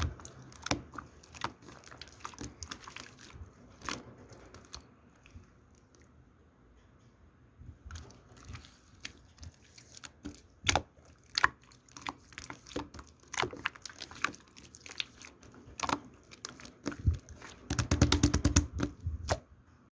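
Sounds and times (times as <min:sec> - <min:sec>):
sharp clicks and crunchy taps: 0:17.0 - 0:19.4.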